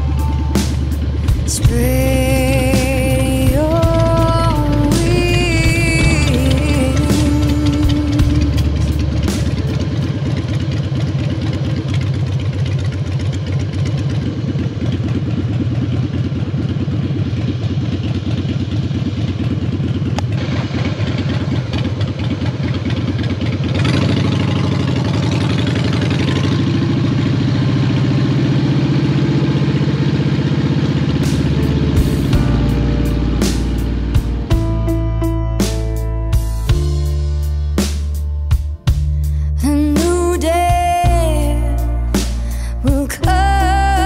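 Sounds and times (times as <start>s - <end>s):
motorcycle engine rolling slowly: 0.0s - 44.0s.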